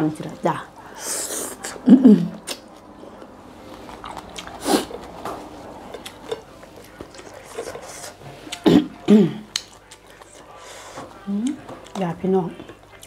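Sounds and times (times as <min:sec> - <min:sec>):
person chewing with wet smacks: 0:01.6 - 0:08.7, 0:09.4 - 0:13.0.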